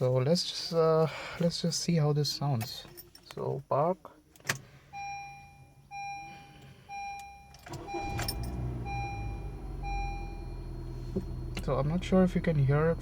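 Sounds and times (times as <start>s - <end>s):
car warning chime beeping: 4.9s - 11.5s
car engine idling: 7.7s - 13.0s.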